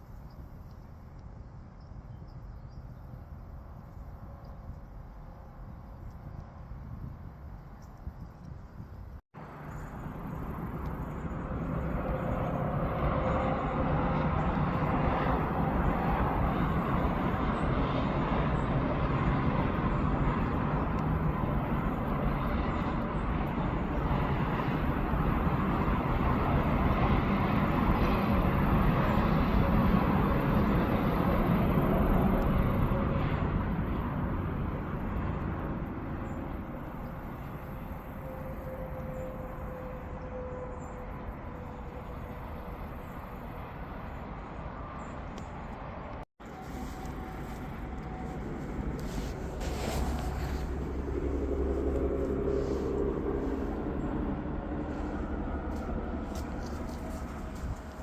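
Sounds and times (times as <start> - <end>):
passing vehicle rumble: 41.2 - 58.0.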